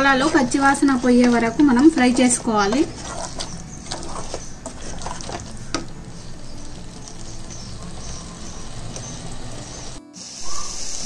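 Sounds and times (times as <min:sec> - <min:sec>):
wooden spatula scraping a pot: 0:00.0 - 0:08.6
chicken sizzling in a pot: 0:00.0 - 0:11.0.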